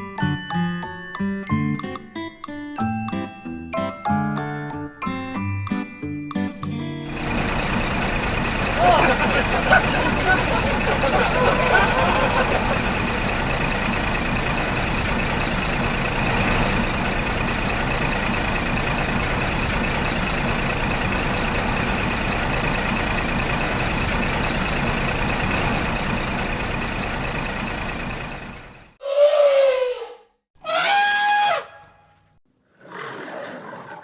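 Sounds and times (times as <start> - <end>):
engine running: 7.0 - 29.0.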